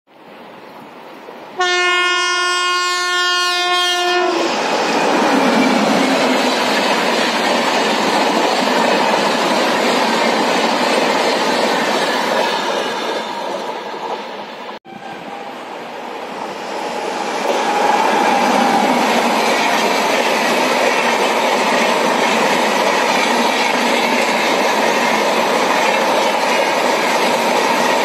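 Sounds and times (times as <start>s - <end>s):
train rushing past: 1.0s - 28.0s
locomotive horn blast: 1.6s - 4.6s, 14.8s - 15.7s.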